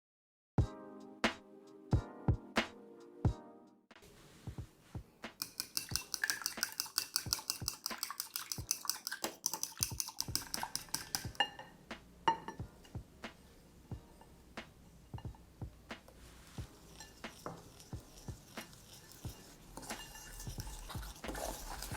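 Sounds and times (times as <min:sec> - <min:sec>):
utensil beating against bowl: 0:05.4 - 0:13.0, 0:15.9 - 0:21.9.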